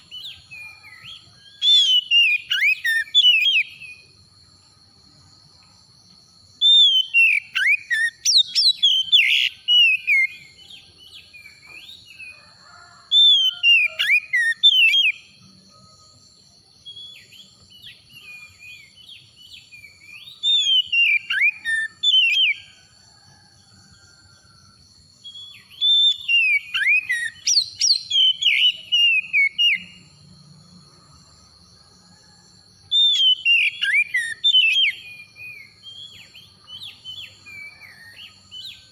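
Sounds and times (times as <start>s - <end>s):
bird singing whistled phrases: 0.0s - 4.1s, 6.6s - 12.3s, 13.2s - 15.2s, 16.8s - 22.7s, 25.2s - 30.0s, 32.9s - 38.9s.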